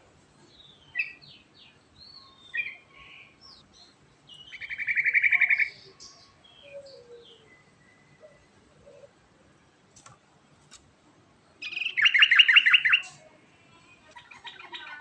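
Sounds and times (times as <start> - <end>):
bird singing chirps and trills: 0.4 - 9.2, 11.6 - 13.3.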